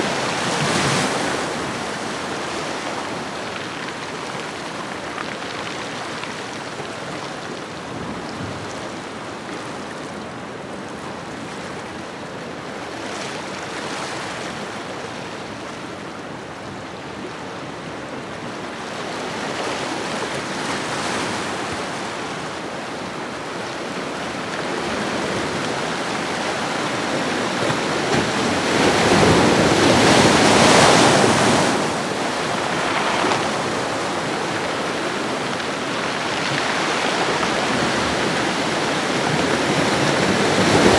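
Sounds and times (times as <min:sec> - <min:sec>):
ocean waves washing ashore: 0:19.5 - 0:40.9.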